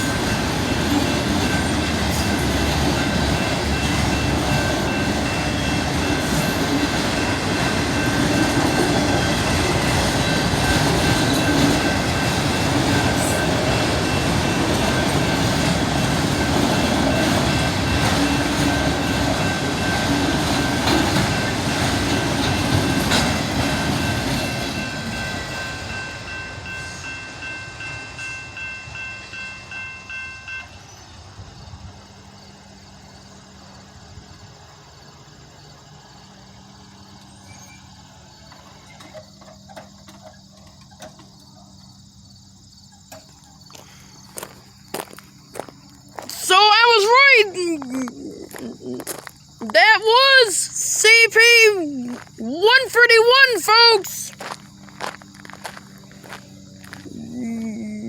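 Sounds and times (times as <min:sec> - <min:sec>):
crossing bell ringing: 0:00.0 - 0:31.1
train wheels on rails: 0:00.0 - 0:58.0.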